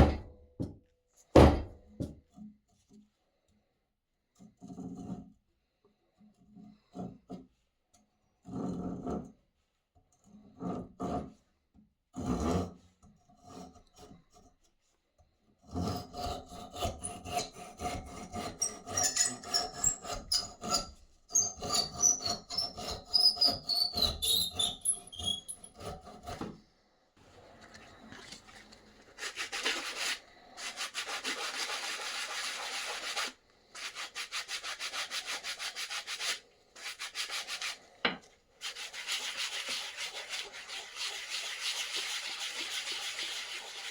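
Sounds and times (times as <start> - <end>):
knocks: 1.4 - 2.2
rubbing and scraping on axe: 15.8 - 26.5, 29.2 - 43.9.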